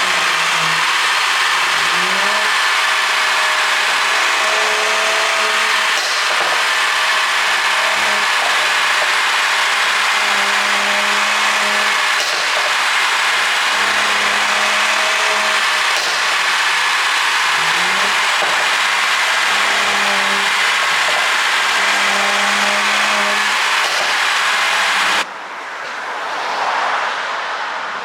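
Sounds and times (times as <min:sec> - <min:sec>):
road and wind noise: 0:25.2 - 0:28.0.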